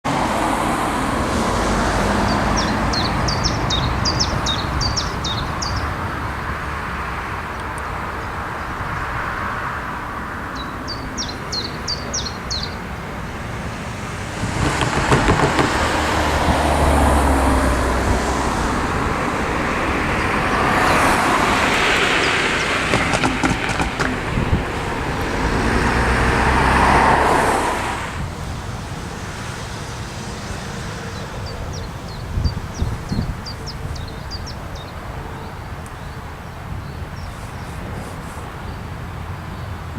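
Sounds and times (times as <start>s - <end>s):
vehicle crossing railway tracks: 0.1s - 39.9s
bird chirps: 2.3s - 5.9s, 10.6s - 12.8s.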